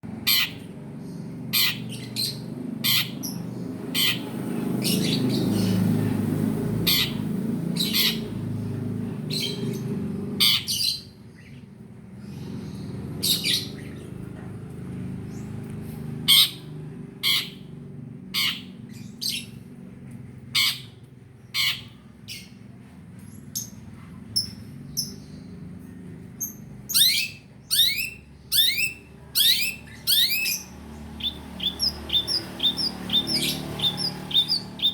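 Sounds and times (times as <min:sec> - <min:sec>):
bird calling harsh notes: 0:26.9 - 0:34.9.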